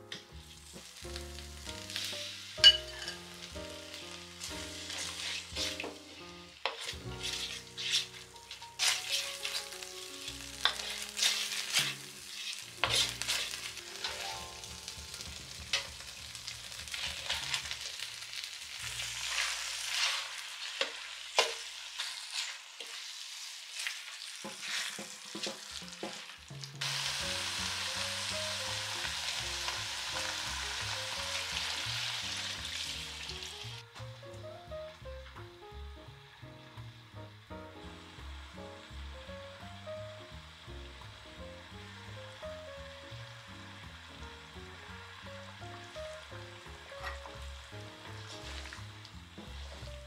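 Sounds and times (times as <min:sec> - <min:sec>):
curry paste frying in a wok: 0:00.0 - 0:50.0
metal spoon scraping a pan: 0:02.0 - 0:03.3, 0:04.4 - 0:14.6, 0:16.8 - 0:17.8, 0:18.9 - 0:23.1, 0:23.8 - 0:26.2, 0:47.0 - 0:47.4.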